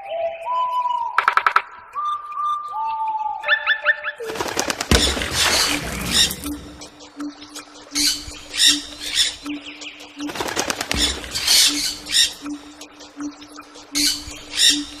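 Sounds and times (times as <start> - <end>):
birds flapping wings: 4.2 - 6.9, 10.2 - 12.4.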